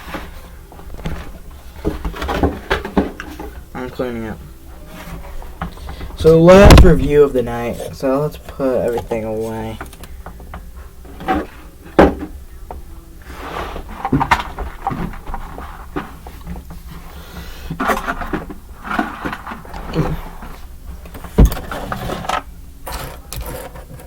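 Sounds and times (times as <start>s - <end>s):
sharp knocks: 6.5s - 7.3s
plastic parts rustling and clicking: 13.7s - 24.0s.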